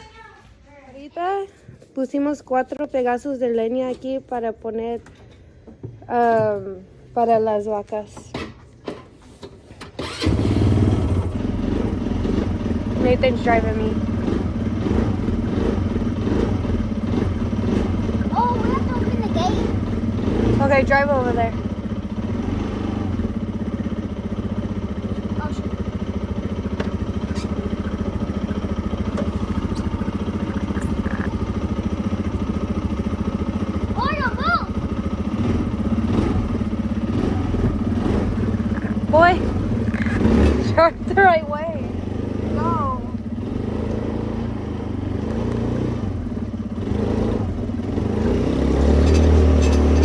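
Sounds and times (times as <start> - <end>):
small engine throbbing: 10.0 - 50.0
rattling: 23.2 - 34.0, 48.6 - 50.0.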